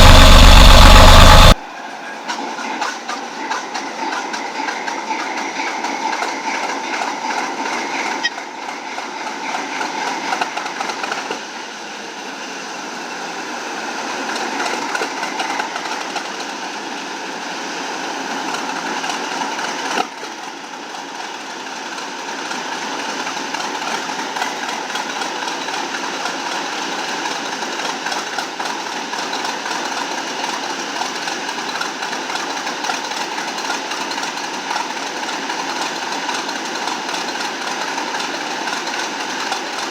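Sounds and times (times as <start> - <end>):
large diesel engine running: 0.0 - 1.6, 14.0 - 39.9.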